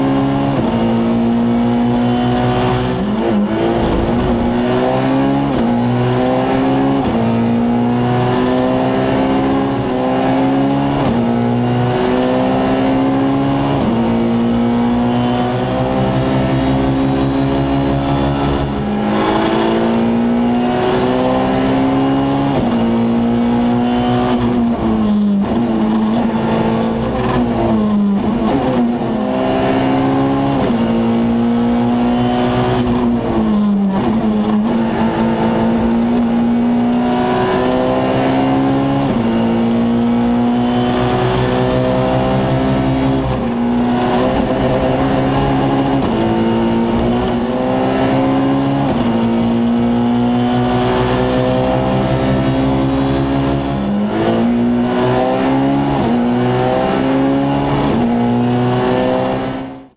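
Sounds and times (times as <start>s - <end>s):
rally car engine revving: 0.0s - 59.9s
road and drivetrain rumble: 0.0s - 59.9s.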